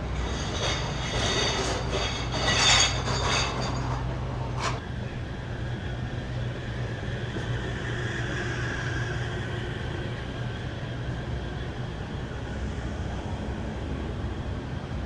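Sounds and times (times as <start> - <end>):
vehicle engine hum: 3.9 - 15.0.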